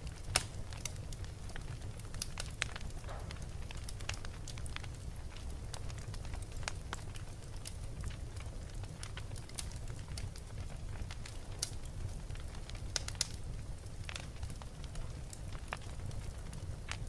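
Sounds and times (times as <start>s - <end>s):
low steady fire rumble: 0.0s - 17.0s
wood fire crackling and popping: 0.0s - 17.0s.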